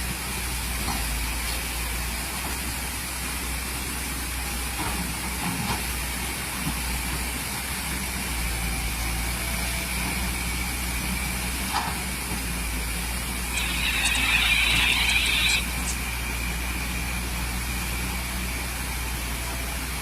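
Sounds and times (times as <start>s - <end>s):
excavator diesel engine running: 0.0s - 20.0s
constant hiss: 12.9s - 17.3s.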